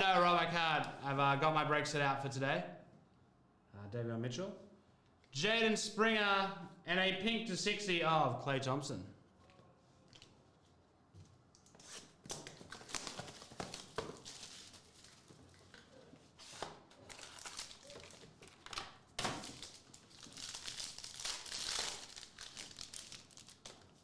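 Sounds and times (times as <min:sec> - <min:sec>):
cards being handled: 0:11.7 - 0:24.0
foil wrapper tearing and crinkling: 0:12.7 - 0:15.3, 0:16.9 - 0:24.0.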